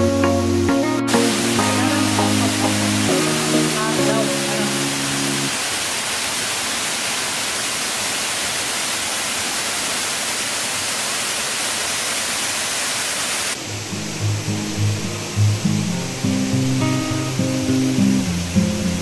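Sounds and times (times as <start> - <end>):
waterfall rushing hiss: 0.1 - 19.0.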